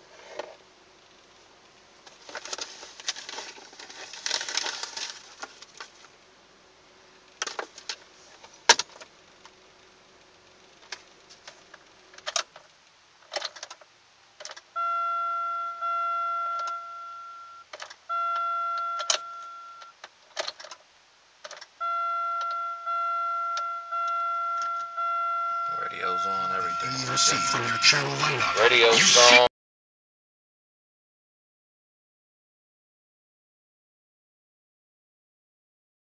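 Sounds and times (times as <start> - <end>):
car warning chime tone: 14.8 - 20.0, 21.8 - 29.2.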